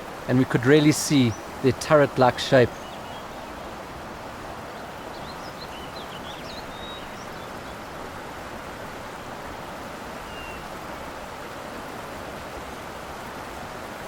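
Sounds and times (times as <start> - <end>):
outdoor background hiss: 0.0 - 14.0
small birds chirping: 0.6 - 3.8, 4.6 - 8.0, 10.2 - 10.7.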